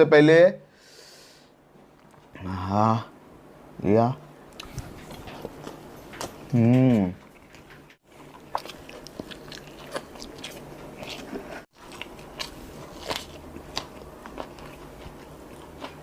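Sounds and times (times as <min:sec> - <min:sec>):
chewing and biting food: 0:04.6 - 0:16.0.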